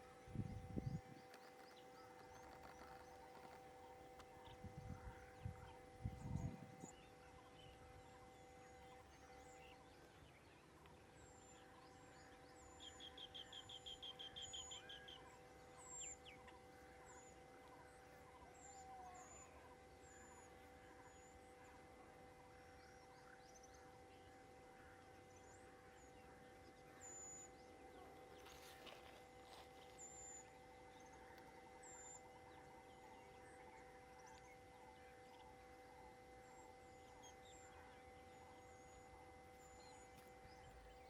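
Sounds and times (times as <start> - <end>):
bird trill: 0.0 - 10.4, 11.3 - 21.7
birds chirping: 0.0 - 21.8
steady two-tone hum: 0.0 - 41.0.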